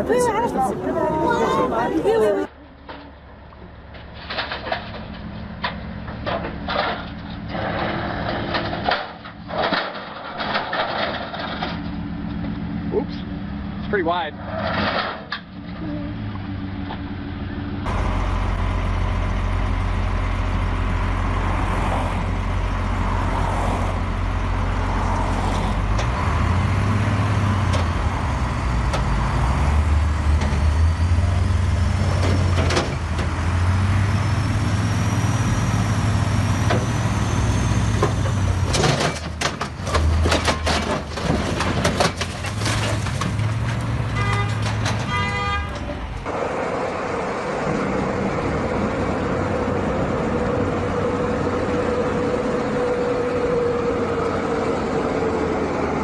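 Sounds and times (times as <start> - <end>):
heavy engine humming: 0.0 - 56.0
sharp knocks and clatter: 3.9 - 12.5, 37.9 - 46.0.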